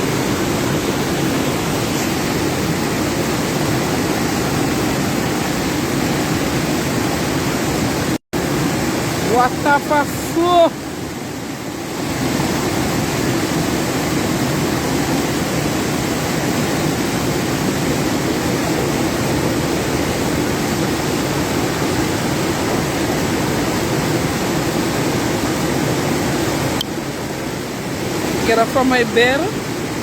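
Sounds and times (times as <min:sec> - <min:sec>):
floodwater rushing: 0:00.0 - 0:30.0.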